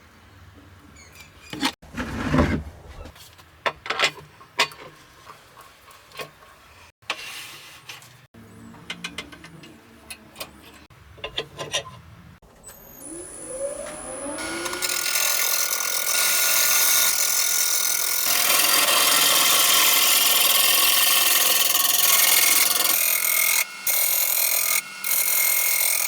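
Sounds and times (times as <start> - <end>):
rubbing and scraping wood: 1.5 - 3.4
abrupt cuts in wood: 13.4 - 26.0.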